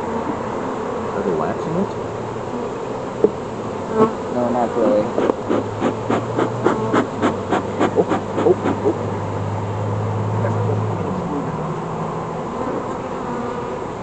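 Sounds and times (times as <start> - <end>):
honeybees buzzing: 0.0 - 14.0
sharp scraping strokes: 4.8 - 9.0.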